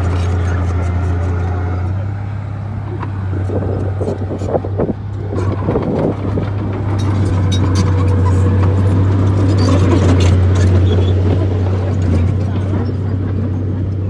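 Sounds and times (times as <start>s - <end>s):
bulldozer diesel engine droning: 0.0s - 14.0s
metallic clanks and rattles: 5.3s - 13.0s.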